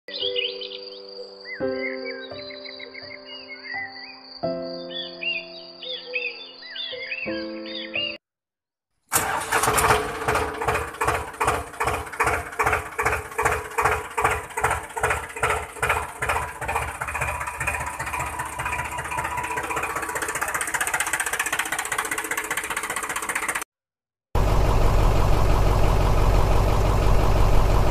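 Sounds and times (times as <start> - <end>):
diesel tractor engine starting: 9.1 - 23.7, 24.4 - 27.9.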